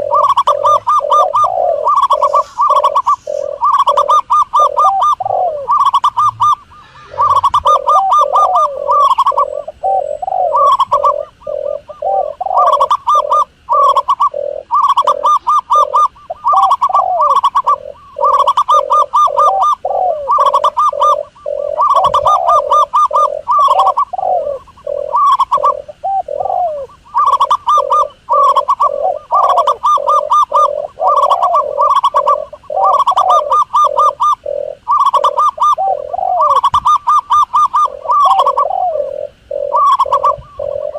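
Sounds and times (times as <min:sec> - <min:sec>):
doves cooing: 0:00.0 - 0:40.9.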